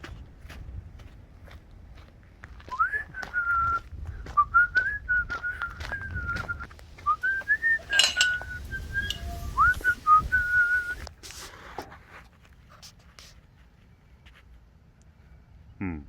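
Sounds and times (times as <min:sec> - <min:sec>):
person whistling: 0:02.7 - 0:11.1
brief clatter: 0:07.6 - 0:10.0.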